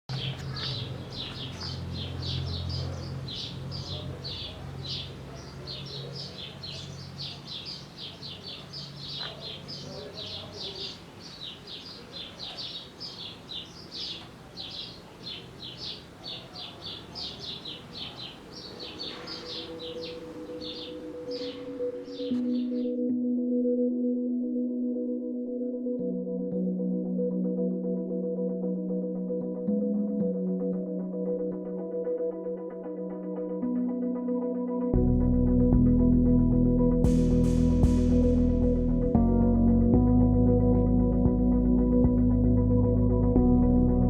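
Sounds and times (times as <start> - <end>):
small birds chirping rapidly: 0.1 - 22.9.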